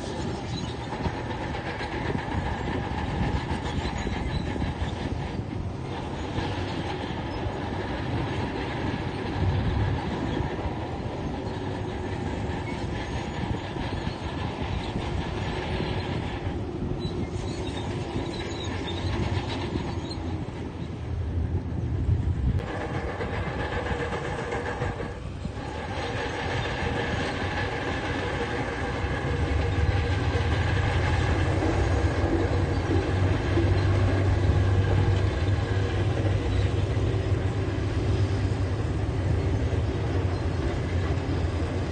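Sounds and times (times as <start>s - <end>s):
diesel engine under load: 0.0s - 41.9s
steel tracks clanking: 0.0s - 41.9s.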